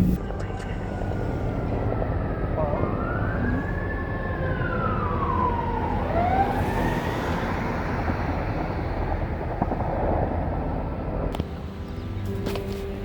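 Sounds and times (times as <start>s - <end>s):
steady low rumble: 0.0s - 3.9s, 7.9s - 11.5s
emergency vehicle siren wailing: 0.0s - 11.3s.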